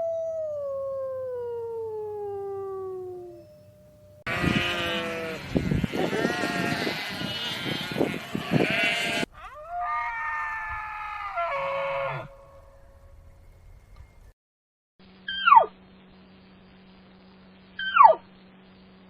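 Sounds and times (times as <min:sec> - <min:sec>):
farm animal bleating: 0:04.3 - 0:12.5.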